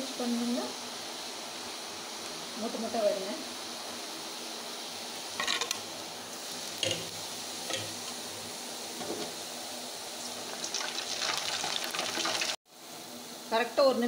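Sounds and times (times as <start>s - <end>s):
batter frying in hot oil: 5.0s - 12.7s
ladle stirring in oil: 5.4s - 8.5s, 10.2s - 12.6s.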